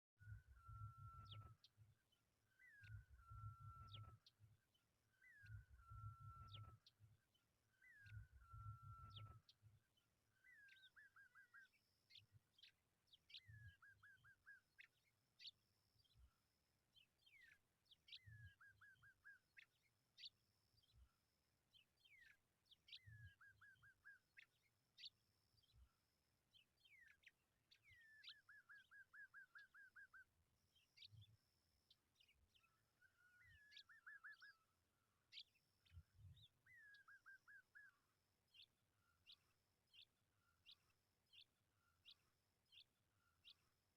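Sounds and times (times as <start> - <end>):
bird singing faintly: 26.5 - 43.8.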